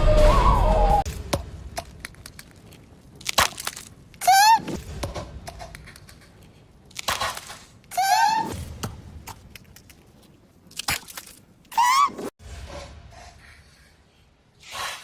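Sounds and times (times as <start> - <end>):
high squeaky cartoon voice: 4.2 - 4.7, 8.0 - 8.5.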